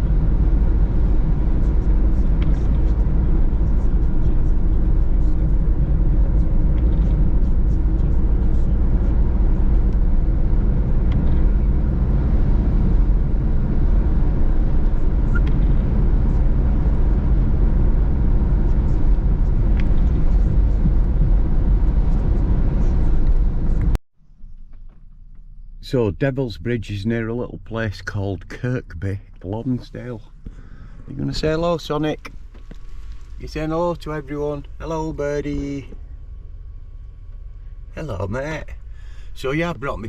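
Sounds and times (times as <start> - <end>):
engine and road rumble in van: 0.0 - 40.0.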